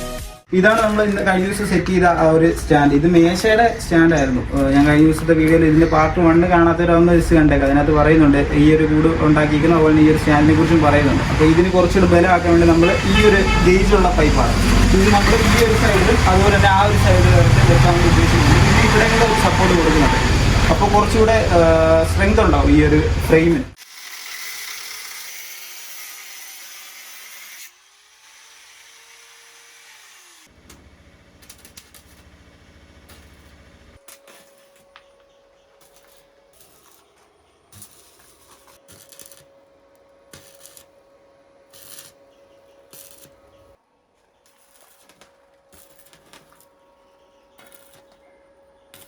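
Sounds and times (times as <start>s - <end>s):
low buzz: 0.8s - 23.8s
power tool running: 7.2s - 35.1s.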